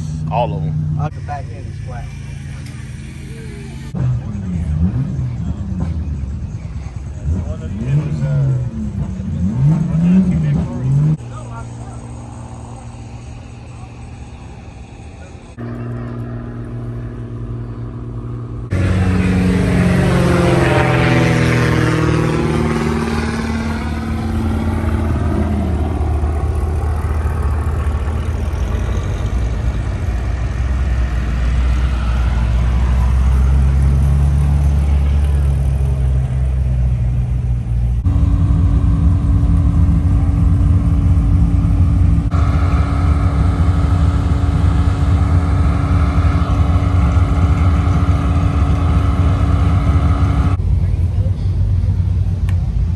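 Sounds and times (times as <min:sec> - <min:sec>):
vehicle engines: 0:00.0 - 0:52.9.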